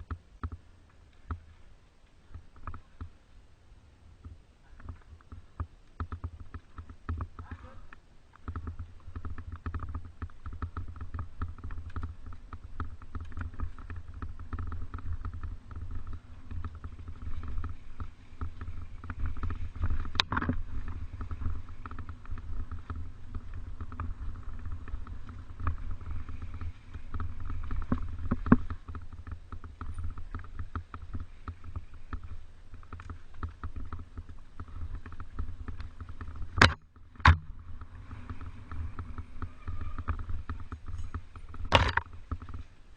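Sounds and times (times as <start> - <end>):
bike rattling and clicking: 0.0 - 3.4, 4.1 - 42.9
wind rumble on microphone: 0.0 - 42.9.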